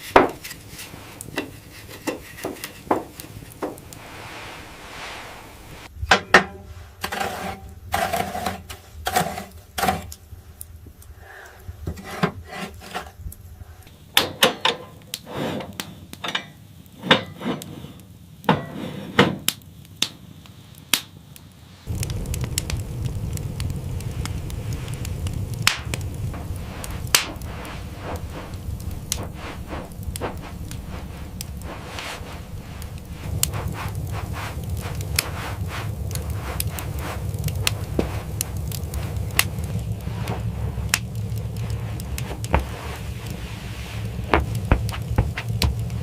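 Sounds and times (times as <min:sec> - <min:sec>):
steady low rumble: 0:00.0 - 0:06.1, 0:21.2 - 0:46.0
wood knocks and thuds: 0:02.0 - 0:03.8, 0:42.2 - 0:42.8, 0:44.1 - 0:46.0.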